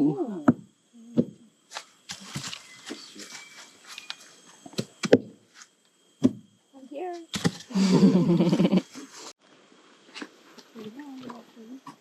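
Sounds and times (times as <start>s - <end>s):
hollow knocks on tree root: 4.8s - 5.3s.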